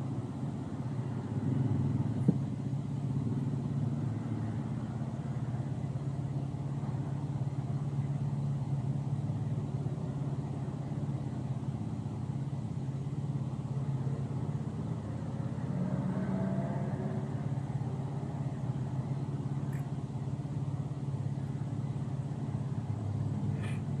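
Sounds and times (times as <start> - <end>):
car engine and road noise: 0.0 - 24.0
faint clicks: 19.6 - 20.0.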